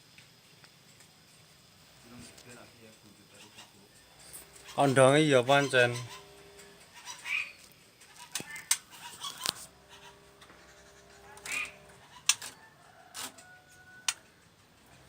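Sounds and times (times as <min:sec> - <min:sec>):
songbirds chirping: 0:00.6 - 0:15.0.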